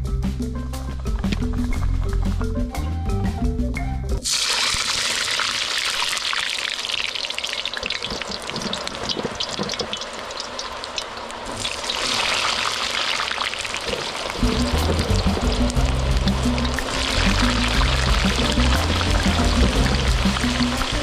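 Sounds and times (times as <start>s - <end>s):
potatoes sizzling in hot oil: 4.2s - 21.0s.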